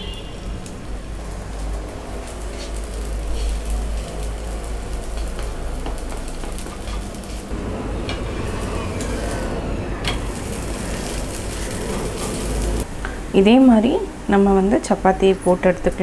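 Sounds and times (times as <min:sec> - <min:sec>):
flatbread sizzling in oil: 0:00.0 - 0:07.6, 0:10.1 - 0:12.9
spatula scraping and tapping pan: 0:05.2 - 0:07.4.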